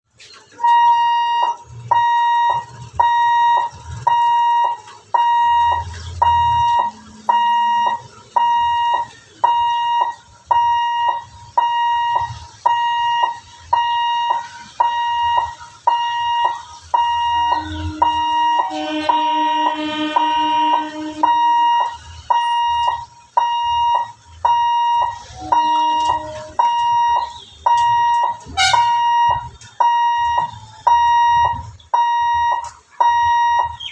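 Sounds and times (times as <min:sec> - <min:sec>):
level crossing buzzer beeping: 0:00.5 - 0:33.9
train horn: 0:17.6 - 0:21.6, 0:25.4 - 0:26.6, 0:28.6 - 0:29.0.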